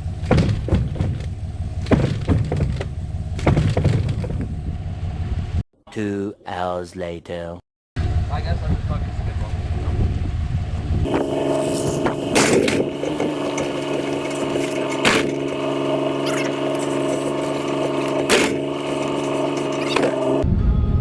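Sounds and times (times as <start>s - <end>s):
sharp knocks: 0.2s - 4.6s, 11.1s - 20.4s
engine running: 11.1s - 20.4s.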